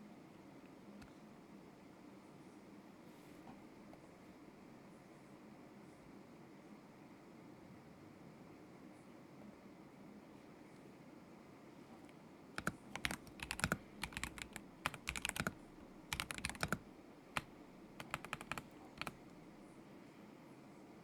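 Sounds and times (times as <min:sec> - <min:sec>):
mechanical keyboard typing: 0:12.6 - 0:19.4.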